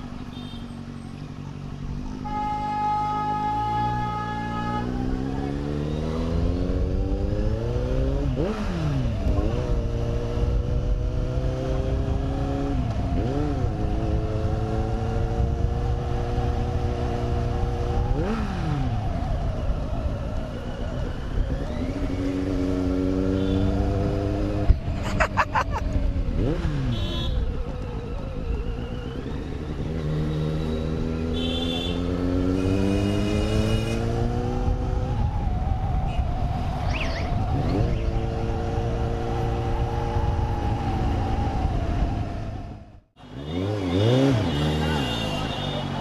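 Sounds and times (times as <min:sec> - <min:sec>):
motorbike engine accelerating: 0:21.5 - 0:35.4.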